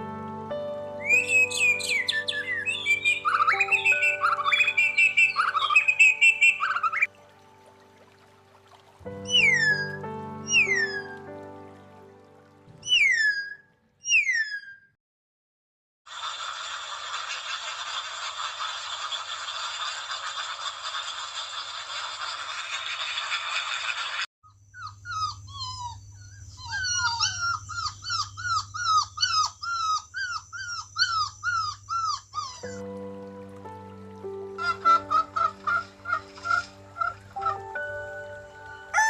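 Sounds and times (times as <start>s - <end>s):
music: 0.0s - 13.1s, 32.7s - 39.0s
dog whimpering and yelping: 24.8s - 32.8s.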